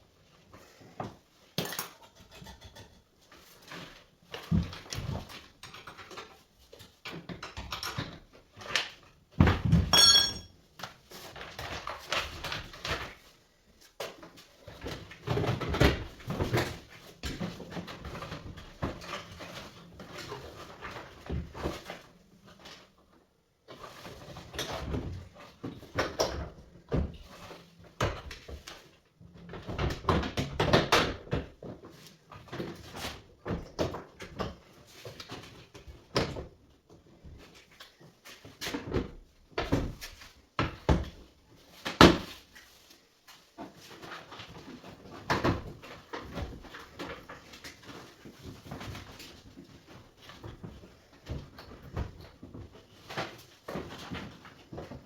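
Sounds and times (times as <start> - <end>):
hand tools and parts clattering: 1.6 - 3.1, 9.7 - 10.6.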